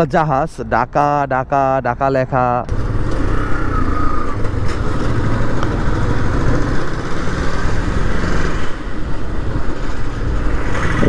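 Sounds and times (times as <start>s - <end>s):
wind buffeting microphone: 2.6s - 11.0s
motorcycle engine running: 2.7s - 11.0s.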